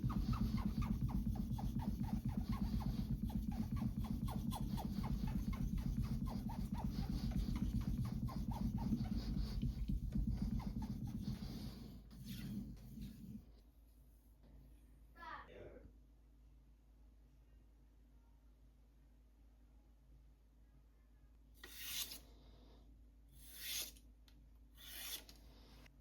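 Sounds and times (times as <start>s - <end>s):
knife scraping on whetstone: 21.6s - 22.2s, 23.4s - 24.0s, 24.8s - 25.3s.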